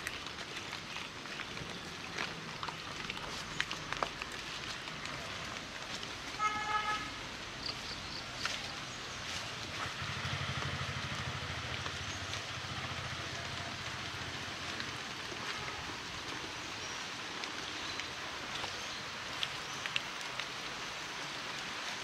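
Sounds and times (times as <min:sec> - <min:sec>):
vehicle engine rumbling: 0:00.0 - 0:17.4
rain hiss: 0:00.0 - 0:22.0
vehicle horn toot: 0:06.4 - 0:07.1.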